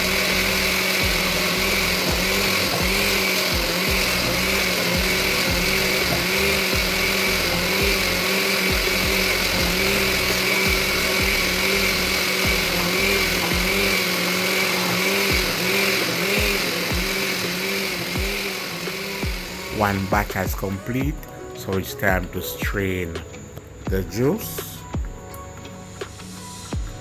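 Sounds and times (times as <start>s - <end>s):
blender running: 0.0s - 21.3s.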